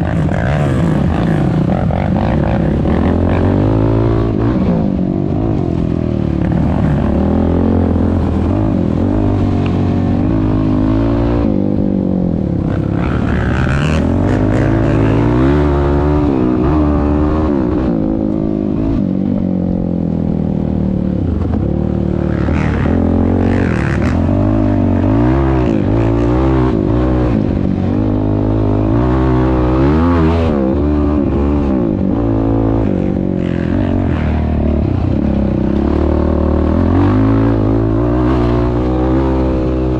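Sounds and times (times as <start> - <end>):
quad engine revving: 0.0 - 19.1, 20.8 - 39.9.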